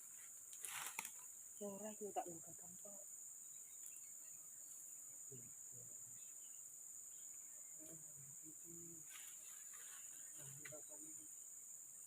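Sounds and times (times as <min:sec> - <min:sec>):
crickets chorus: 0:00.0 - 0:12.0.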